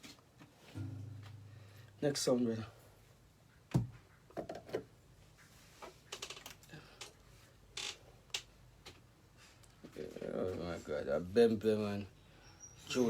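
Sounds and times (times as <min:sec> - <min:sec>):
loud knock: 0:00.8 - 0:02.0.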